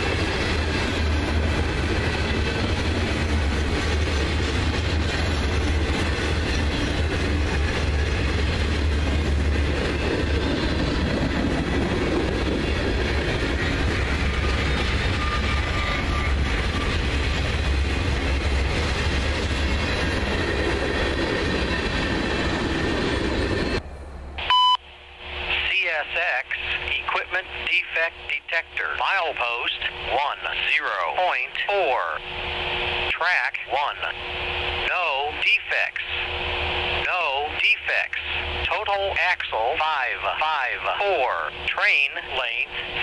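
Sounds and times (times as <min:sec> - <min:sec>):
freight cars rumbling on rails: 0:00.0 - 0:24.4.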